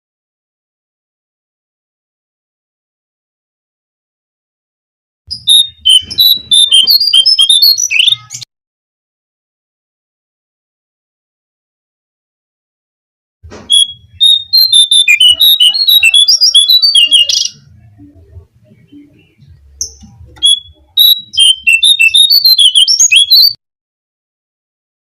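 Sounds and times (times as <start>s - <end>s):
recorded birdsong whistled notes: 5.3s - 8.5s, 13.7s - 23.6s.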